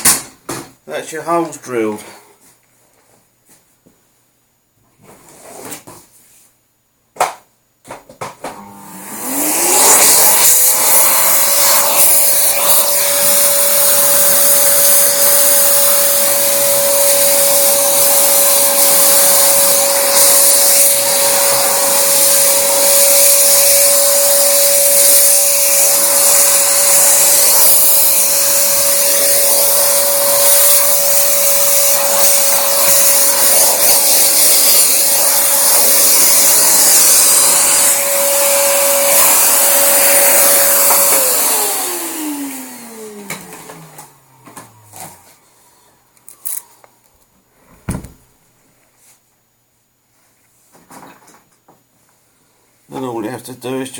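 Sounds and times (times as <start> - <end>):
small electric motor whining: 8.6 - 45.4.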